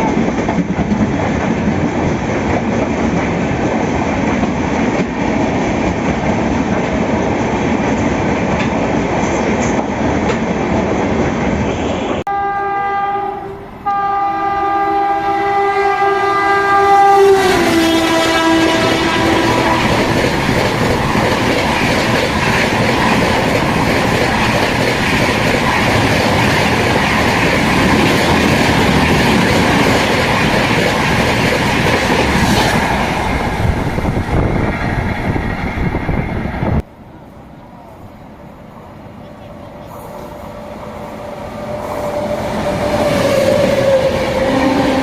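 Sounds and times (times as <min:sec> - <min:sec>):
train wheels rumbling on rails: 0:00.0 - 0:12.2, 0:16.4 - 0:45.0
train horn: 0:11.8 - 0:20.3, 0:41.8 - 0:45.0.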